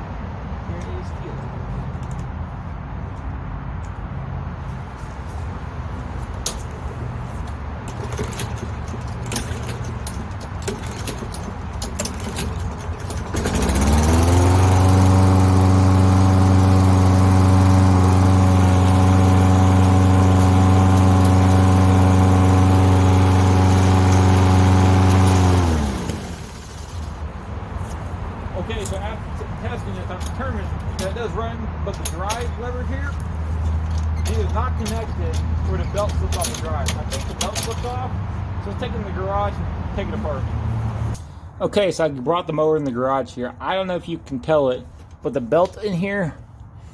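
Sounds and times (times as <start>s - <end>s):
clicks and rattles: 6.4s - 14.6s, 30.0s - 38.1s
lawn mower engine running: 6.4s - 27.9s, 28.5s - 39.0s.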